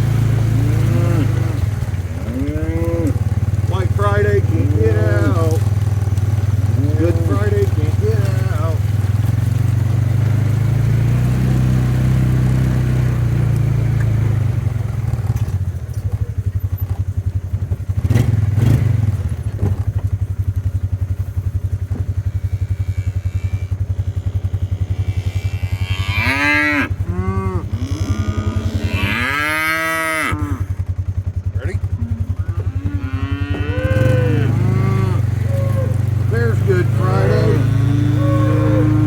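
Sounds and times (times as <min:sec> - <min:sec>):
cattle mooing: 0:00.0 - 0:13.0, 0:22.2 - 0:30.8, 0:31.6 - 0:39.0
vehicle engine idling: 0:00.0 - 0:39.0.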